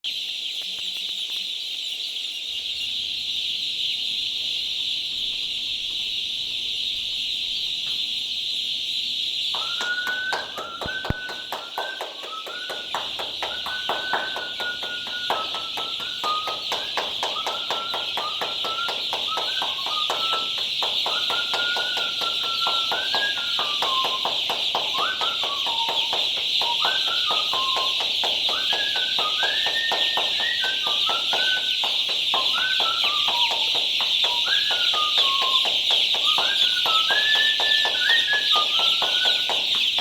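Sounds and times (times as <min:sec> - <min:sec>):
chicks peeping: 0:00.0 - 0:40.0
person clapping rapidly: 0:09.6 - 0:40.0
person whistling a high note: 0:09.6 - 0:40.0.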